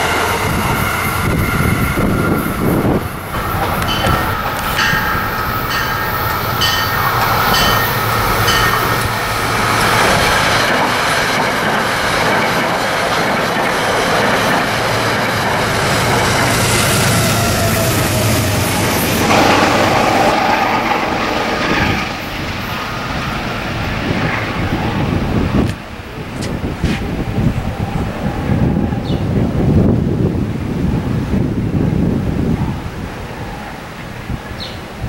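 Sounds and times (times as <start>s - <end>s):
train rushing rumble: 0.0s - 35.0s
train wheels clicking over rail joints: 3.3s - 22.6s.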